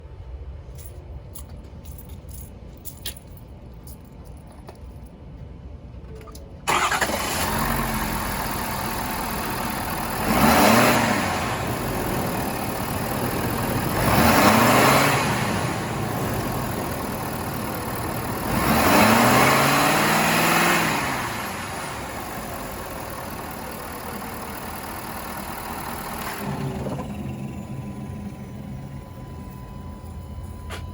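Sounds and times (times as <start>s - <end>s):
engine idling and revving: 6.7s - 30.9s
pickup engine starting: 6.7s - 30.9s.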